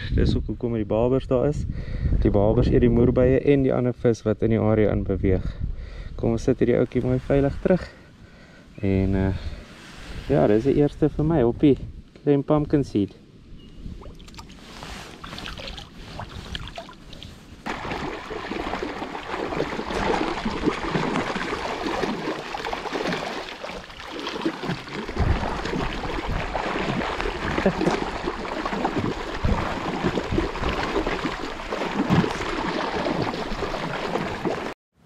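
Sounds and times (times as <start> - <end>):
wind buffeting microphone: 0.0 - 8.0, 13.4 - 23.0, 23.6 - 34.4
water splashing against boat hull: 14.0 - 34.8.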